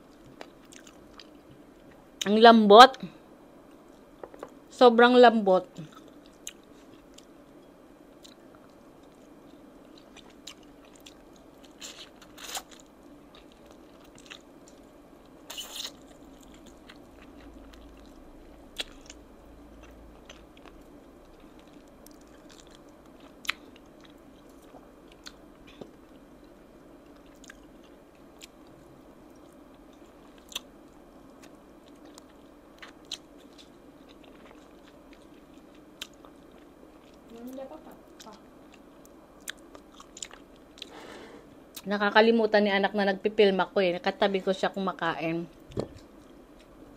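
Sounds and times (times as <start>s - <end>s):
faint steady hum: 0.0s - 46.9s
person chewing chicken wings: 8.2s - 14.8s, 15.5s - 26.0s, 27.1s - 37.3s, 38.2s - 41.0s.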